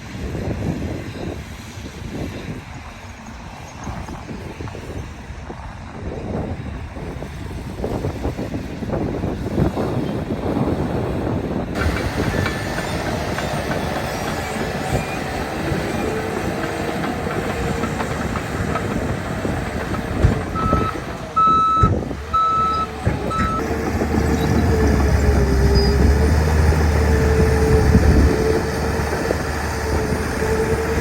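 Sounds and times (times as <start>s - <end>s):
diesel engine under load: 0.0s - 31.0s
reversing alarm beeping: 20.6s - 23.7s.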